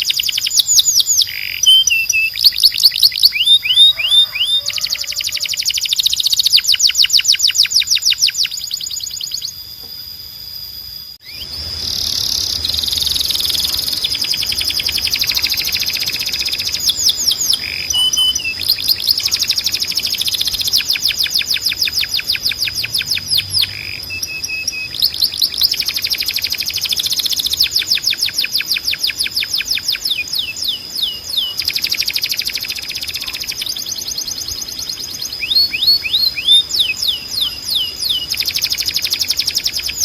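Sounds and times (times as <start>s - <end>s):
canary singing trills: 0.0s - 10.0s, 10.9s - 40.0s
lower whistled notes: 5.8s - 28.1s.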